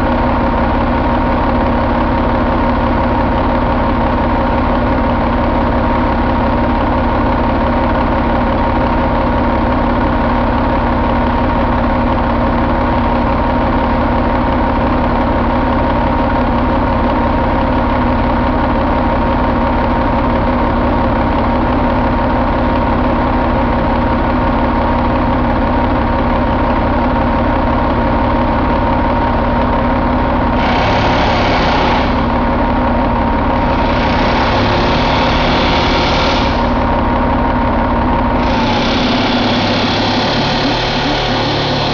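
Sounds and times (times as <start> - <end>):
diesel engine idling: 0.0 - 41.9
brighter harsh noise: 30.5 - 32.6, 38.4 - 41.9.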